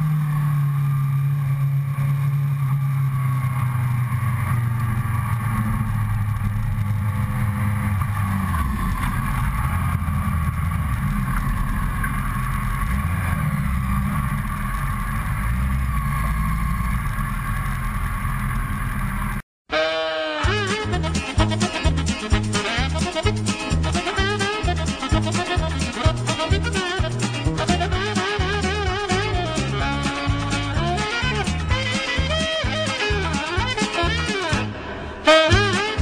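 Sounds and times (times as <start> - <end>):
motorcycle engine at low revs: 0.0 - 19.4
music: 19.7 - 36.0.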